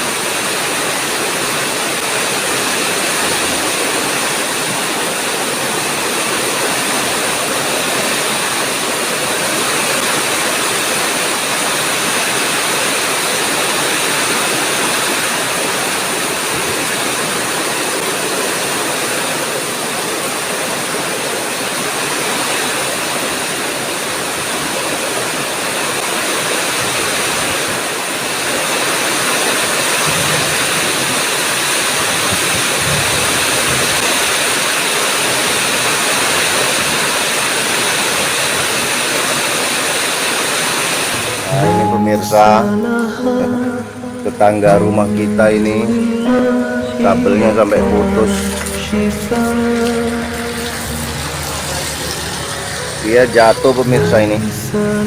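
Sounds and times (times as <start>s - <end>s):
heavy rain pouring: 28.2s - 55.0s.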